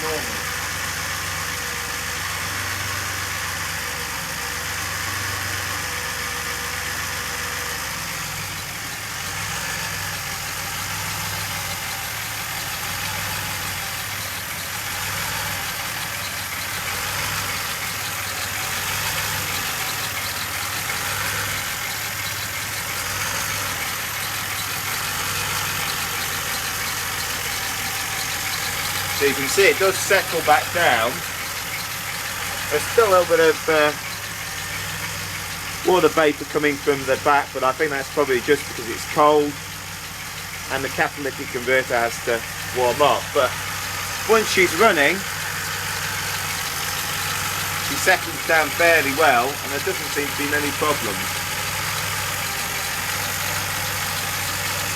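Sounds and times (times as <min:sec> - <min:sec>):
car engine idling: 0:00.0 - 0:54.9.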